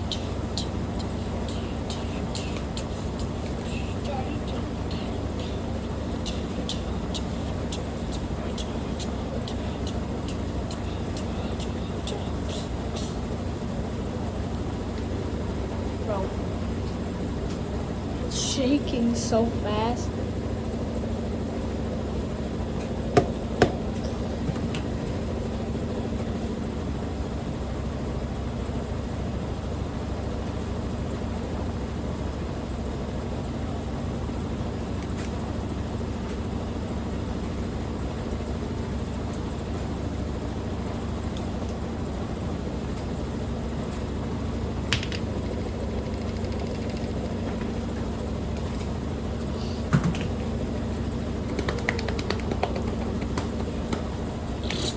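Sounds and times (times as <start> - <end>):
washing machine spinning: 0.0 - 54.9
sharp knocks: 23.2 - 24.0.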